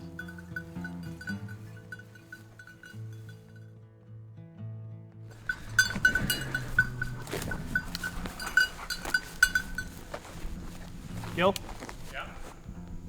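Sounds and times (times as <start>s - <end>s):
small bell jingling: 0.0s - 3.7s, 5.3s - 12.6s
faint background music: 5.3s - 13.0s.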